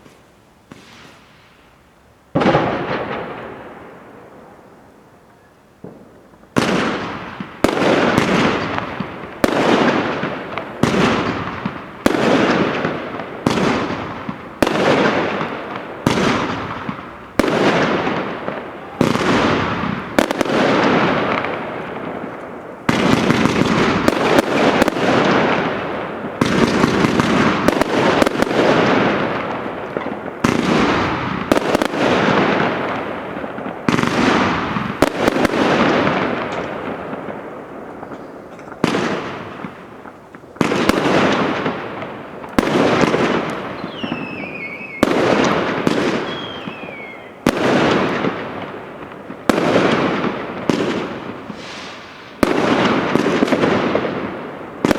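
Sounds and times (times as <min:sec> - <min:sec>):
fireworks bangs and crackling: 0:00.0 - 0:54.9
falling firework whistles: 0:00.7 - 0:01.7, 0:43.0 - 0:47.5, 0:51.4 - 0:52.8.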